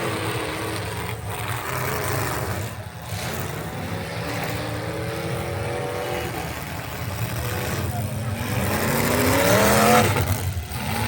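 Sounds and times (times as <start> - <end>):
truck engine running hard: 0.0 - 11.0.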